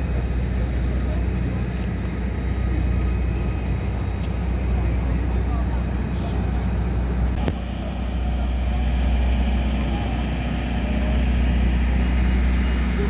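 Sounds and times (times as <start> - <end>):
moving vehicle rumble: 0.0 - 13.0.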